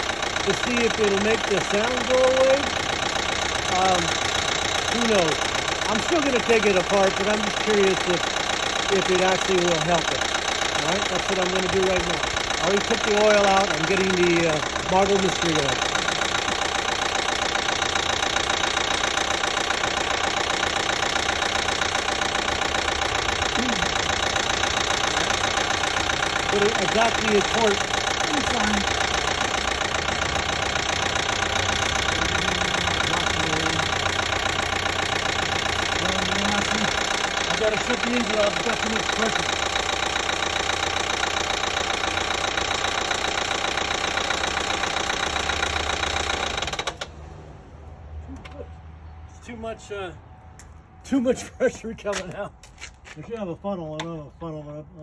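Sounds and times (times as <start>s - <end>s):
rapid ticking knock: 0.0s - 47.1s
car engine idling: 0.0s - 47.5s
man talking: 0.4s - 2.7s, 3.7s - 4.2s, 4.9s - 8.2s, 8.9s - 10.2s, 10.8s - 15.9s, 26.5s - 28.9s, 36.0s - 39.6s, 51.1s - 55.0s.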